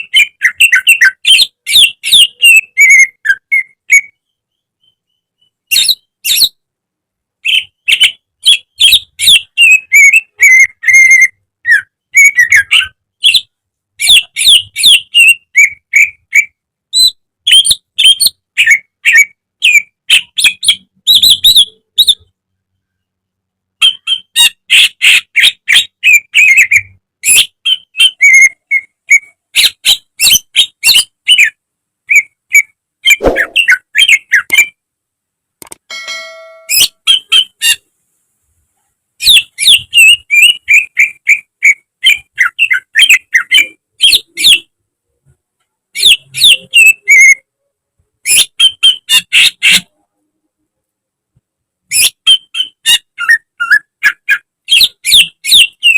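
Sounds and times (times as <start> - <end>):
bird singing whistles and chirps: 0.0 - 6.6, 33.1 - 34.6, 39.2 - 44.7, 46.0 - 47.4, 51.9 - 55.9.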